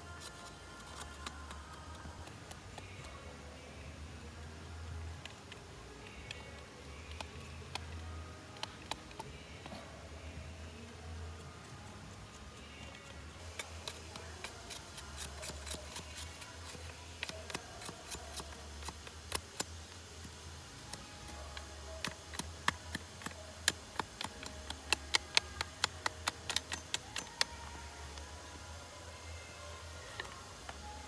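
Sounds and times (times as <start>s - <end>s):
low steady hum: 0.0s - 31.0s
sharp clicks from woodworking: 12.8s - 27.8s.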